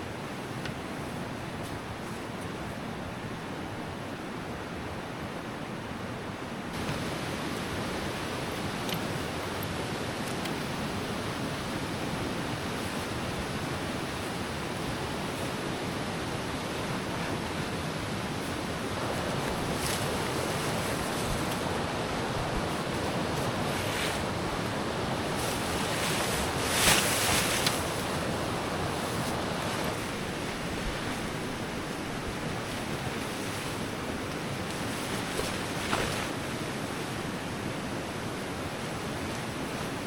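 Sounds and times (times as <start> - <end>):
flowing river water: 0.0 - 40.0
scuff or rustle: 25.4 - 28.3.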